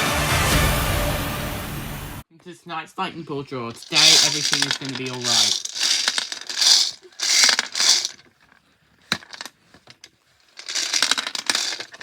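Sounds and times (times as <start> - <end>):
lottery balls rattling: 3.7 - 12.0.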